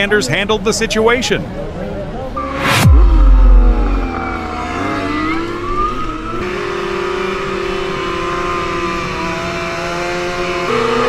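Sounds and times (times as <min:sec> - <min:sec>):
loud low thump: 0:02.4 - 0:06.4
vehicle engine revving: 0:02.4 - 0:11.0.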